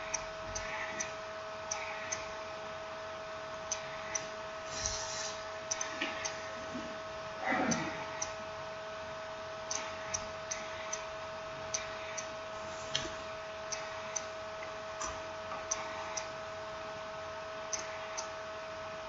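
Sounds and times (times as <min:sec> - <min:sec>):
faint steady tone and hiss: 0:00.0 - 0:19.0.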